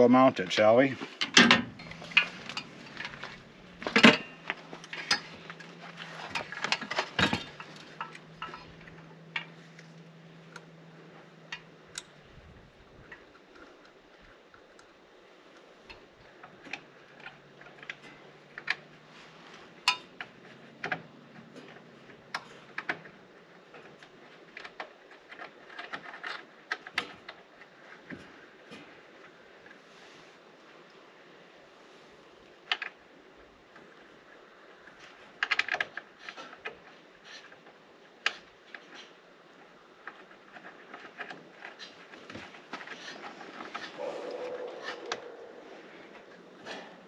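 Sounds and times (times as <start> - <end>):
faint steady hum: 0.0 - 47.0
hardware clicking and clinking: 1.2 - 9.9.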